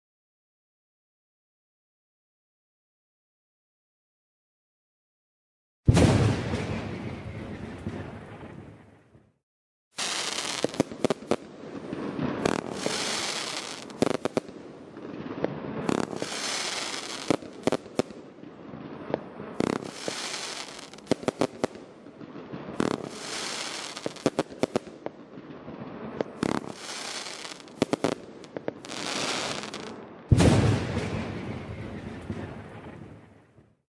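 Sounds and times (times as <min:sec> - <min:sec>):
firework bangs: 0:05.9 - 0:09.0, 0:10.0 - 0:33.4
deep firework boom: 0:05.9 - 0:09.2, 0:27.8 - 0:33.5
firework crackling hiss: 0:10.0 - 0:11.4, 0:12.2 - 0:14.5, 0:15.8 - 0:18.2, 0:19.5 - 0:21.8, 0:22.7 - 0:24.9, 0:26.2 - 0:30.6.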